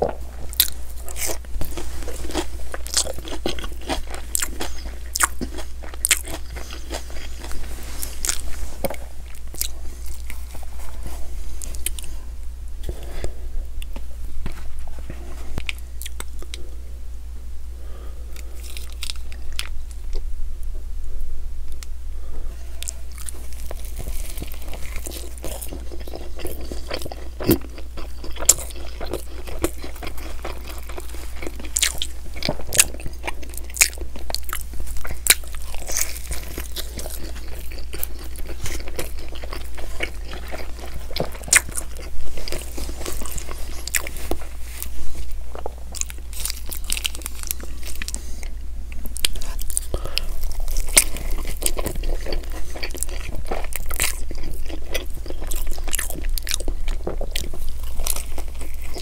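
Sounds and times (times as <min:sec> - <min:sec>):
person biting and chewing: 0:00.0 - 0:12.1, 0:18.4 - 0:20.2, 0:22.8 - 0:59.0
steady low hum: 0:00.0 - 0:59.0
crackles and mouth clicks: 0:13.7 - 0:16.6, 0:21.7 - 0:22.0, 0:22.8 - 0:59.0.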